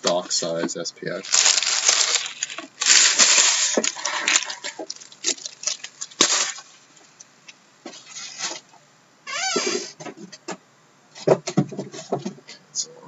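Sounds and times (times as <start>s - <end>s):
plastic and cardboard tearing: 1.2s - 6.9s.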